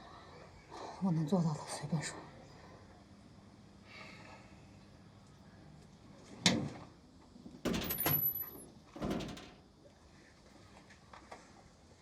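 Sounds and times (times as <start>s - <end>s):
door rattling clatter: 7.6s - 9.7s
door clacking: 7.7s - 9.6s.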